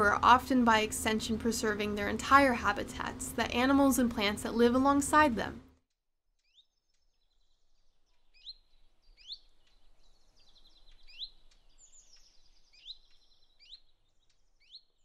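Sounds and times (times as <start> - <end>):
faint birdsong chirps and trills: 6.4 - 15.0.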